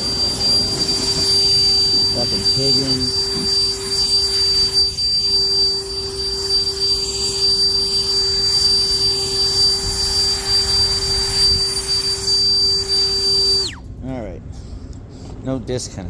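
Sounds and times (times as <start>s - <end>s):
high whine: 0.0s - 14.3s
hvac unit whooshing hum: 0.0s - 16.0s.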